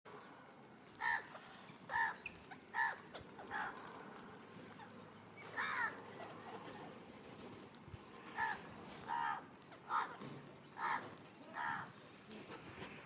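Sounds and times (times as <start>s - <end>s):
bird calling: 1.0s - 3.9s, 8.2s - 13.0s.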